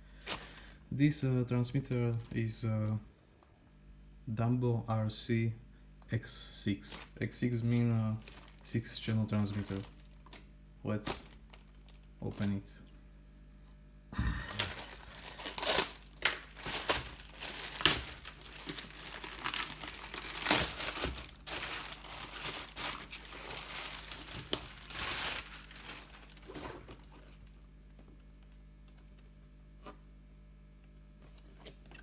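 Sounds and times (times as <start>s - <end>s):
plastic packaging crinkling: 0.2s - 0.7s, 6.9s - 12.8s, 14.2s - 27.5s
sharp ripping of plastic: 7.8s - 12.6s, 14.4s - 26.9s.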